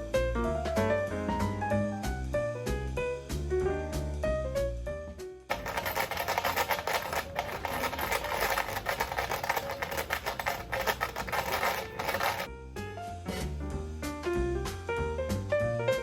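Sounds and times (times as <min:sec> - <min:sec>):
coins jangling in shaken container: 0:05.5 - 0:12.5
coins jingling: 0:05.5 - 0:12.5.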